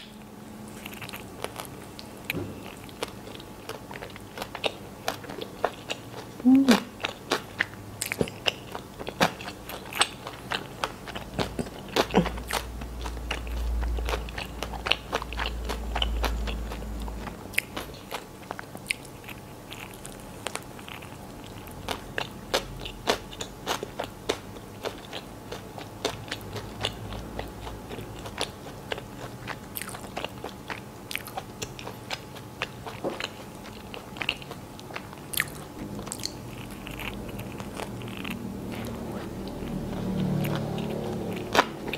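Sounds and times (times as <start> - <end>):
chewing a sandwich: 0.0 - 41.9.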